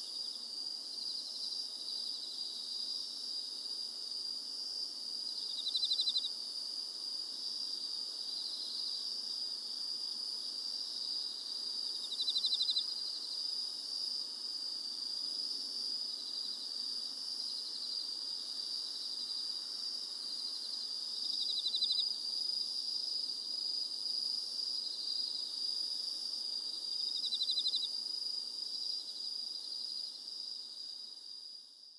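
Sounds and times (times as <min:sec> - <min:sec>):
insect pulsed trill: 0:05.4 - 0:06.4, 0:11.0 - 0:14.1, 0:17.4 - 0:22.2, 0:24.8 - 0:31.4
insects high-pitched drone: 0:05.4 - 0:06.4, 0:12.0 - 0:13.2, 0:27.2 - 0:28.0.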